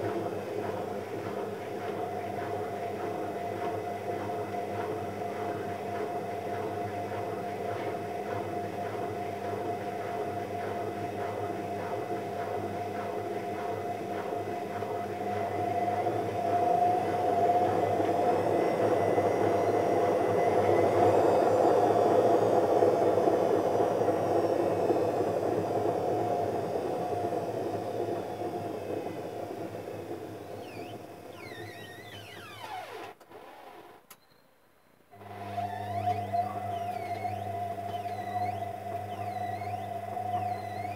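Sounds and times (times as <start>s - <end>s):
machine whirring: 24.0s - 33.9s, 35.2s - 40.9s.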